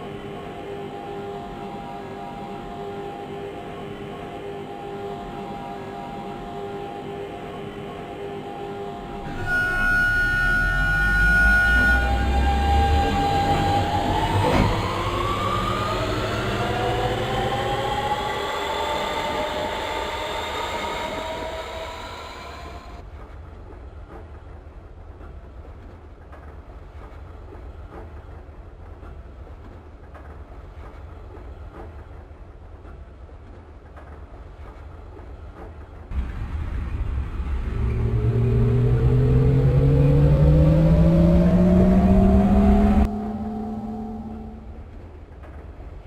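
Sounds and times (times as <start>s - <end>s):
train rail rumble: 0.0s - 46.0s
electric train motor whine: 9.2s - 23.0s, 36.2s - 45.0s.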